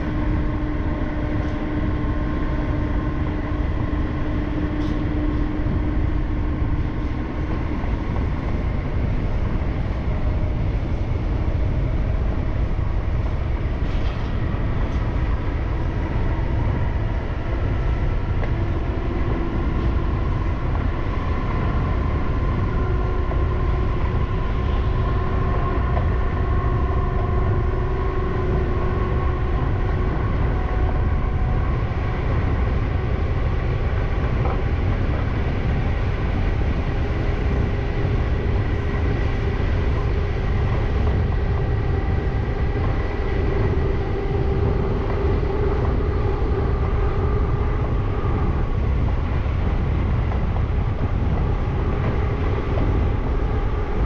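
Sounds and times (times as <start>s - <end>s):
train low rumble: 0.0s - 54.0s.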